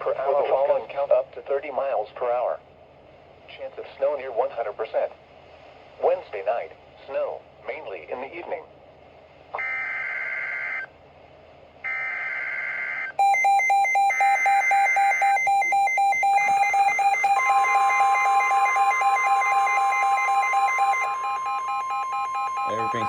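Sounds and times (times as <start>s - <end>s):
pulsing alarm beeps: 11.9s - 23.0s
steady long warning tone: 11.9s - 23.0s
screechy digital data bursts: 13.3s - 23.0s.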